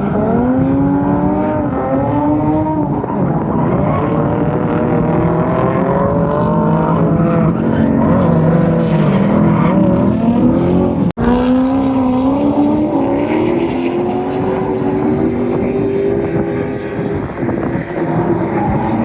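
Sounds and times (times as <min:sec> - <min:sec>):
car engine at high revs: 0:00.0 - 0:19.0.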